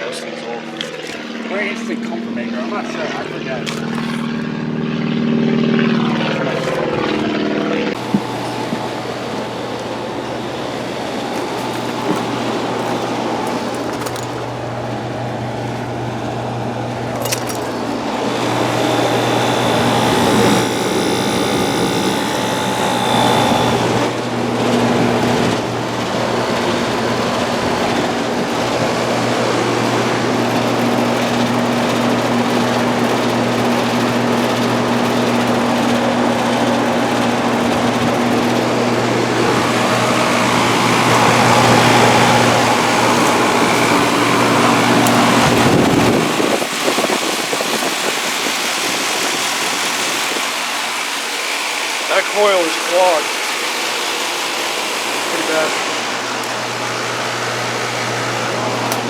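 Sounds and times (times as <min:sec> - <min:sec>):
condenser fans rushing: 0:00.0 - 0:59.0
low compressor hum: 0:01.0 - 0:46.6.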